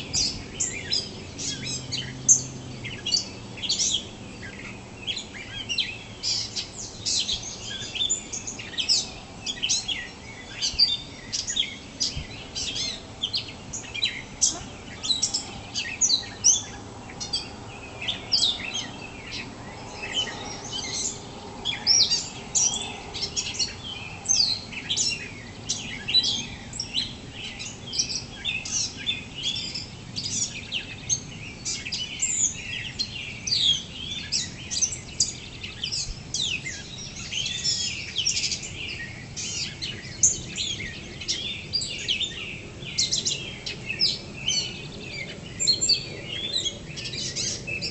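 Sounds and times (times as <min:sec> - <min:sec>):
songbirds singing: 0:00.0 - 0:47.9.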